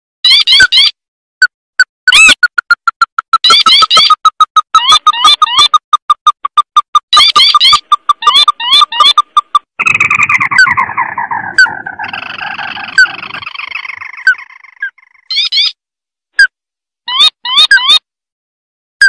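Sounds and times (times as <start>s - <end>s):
bird calling with chattering trill: 0.2s - 1.0s, 2.1s - 15.8s.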